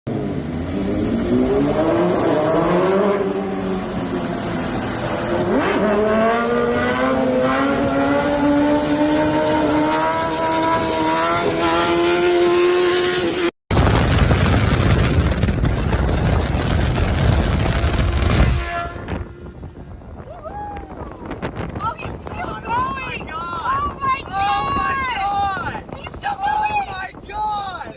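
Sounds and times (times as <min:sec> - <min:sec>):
motorcycle engine accelerating: 0:00.1 - 0:13.5, 0:14.5 - 0:20.0
rough engine rumble: 0:13.7 - 0:21.8.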